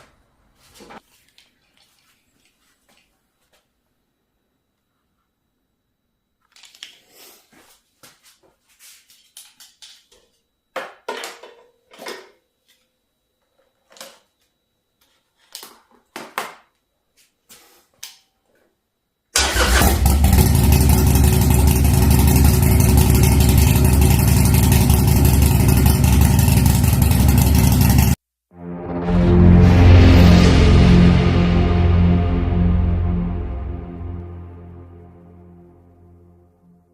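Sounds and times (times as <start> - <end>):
motorcycle engine running: 19.8 - 28.2.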